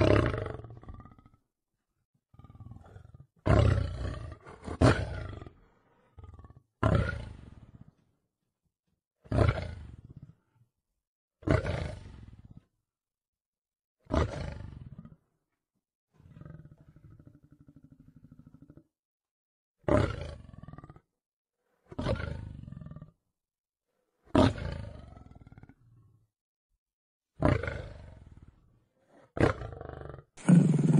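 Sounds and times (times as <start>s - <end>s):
lion roaring: 0.0s - 1.4s, 2.3s - 8.1s, 11.4s - 12.6s, 14.1s - 15.2s, 19.9s - 21.1s, 21.8s - 23.2s, 24.3s - 26.1s, 27.4s - 30.9s
low pulsing growl: 30.4s - 30.9s.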